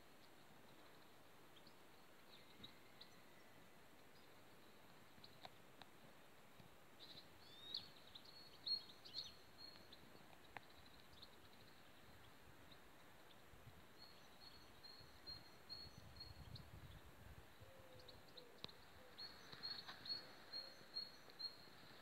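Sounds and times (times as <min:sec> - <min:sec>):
faint high bird chirps: 0:07.0 - 0:22.0.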